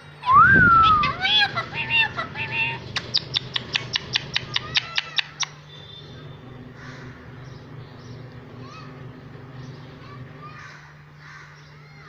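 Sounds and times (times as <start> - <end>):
parrot calling: 0.6 - 7.6.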